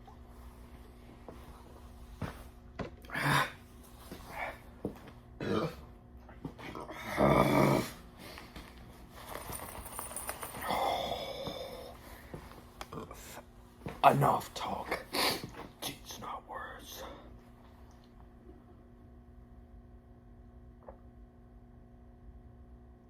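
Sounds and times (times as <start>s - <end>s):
man grunting and groaning: 3.0s - 3.6s, 5.4s - 5.8s, 6.7s - 8.0s, 10.6s - 11.9s.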